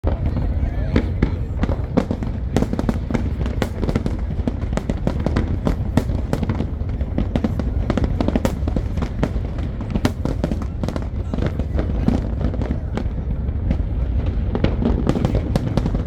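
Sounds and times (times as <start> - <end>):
fireworks bursting: 0.0 - 16.0
fireworks crackling: 0.0 - 16.0.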